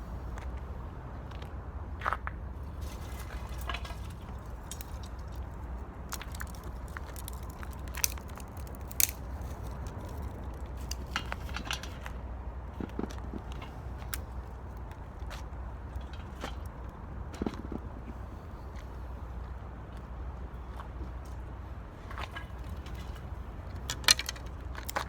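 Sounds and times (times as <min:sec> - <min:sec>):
low fire rumble: 0:00.0 - 0:25.0
wood fire crackling and popping: 0:03.0 - 0:11.9, 0:23.8 - 0:25.0.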